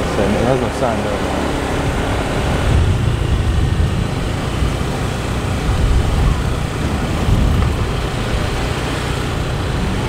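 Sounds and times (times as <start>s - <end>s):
vehicle droning: 0.0s - 10.0s
wind buffeting microphone: 0.0s - 10.0s.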